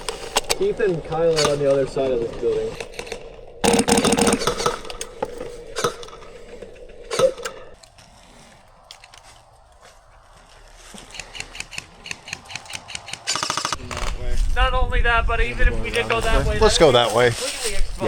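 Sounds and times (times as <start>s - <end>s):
airsoft gunshots: 0.0s - 7.8s, 11.0s - 14.3s
full-auto airsoft burst: 2.8s - 7.8s, 11.1s - 14.2s.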